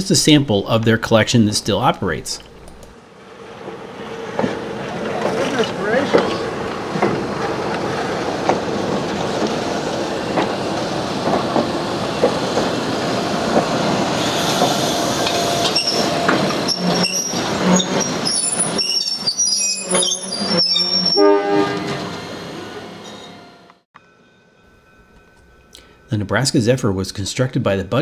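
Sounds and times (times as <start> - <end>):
electric train rumbling past: 0.0 - 28.0
wheel clicks over rail joints: 4.2 - 12.8, 13.5 - 19.1
train squeals and hoots: 14.2 - 26.4.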